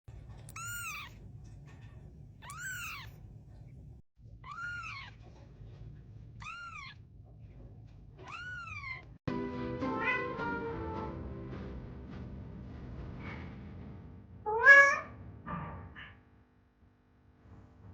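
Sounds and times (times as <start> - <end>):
cat meowing: 0.5 - 1.2, 2.4 - 3.2, 4.4 - 5.2, 6.4 - 7.0, 8.2 - 9.1, 10.0 - 10.2, 14.5 - 15.2
music: 9.3 - 14.3.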